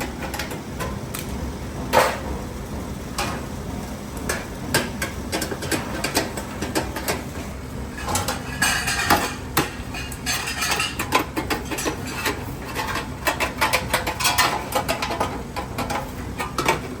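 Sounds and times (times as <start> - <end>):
low background hum: 0.0 - 17.0
metallic clattering and tapping: 4.3 - 17.0.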